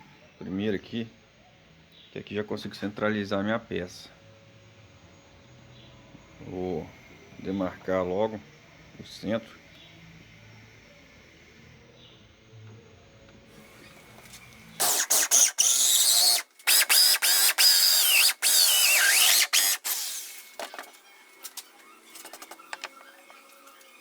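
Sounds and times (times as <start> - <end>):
electric drill running: 13.5 - 24.0.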